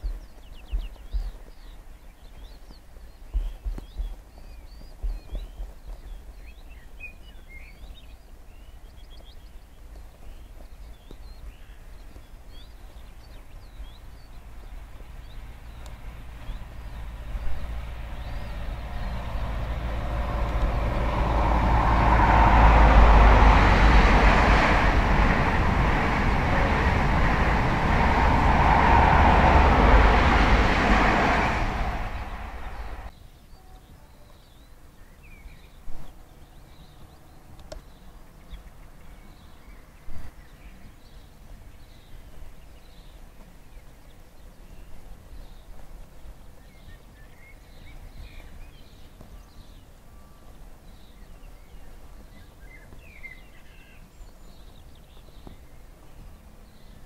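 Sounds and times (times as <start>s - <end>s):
train passing at speed: 13.4s - 33.1s.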